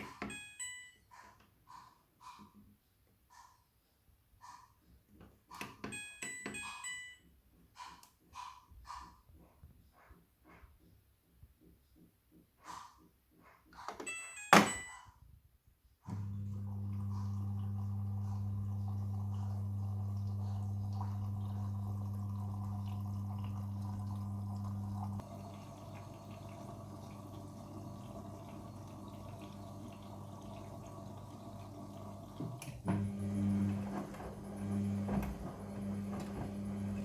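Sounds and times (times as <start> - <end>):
washing machine hum: 16.1 - 37.0
water running into drum: 16.1 - 37.0.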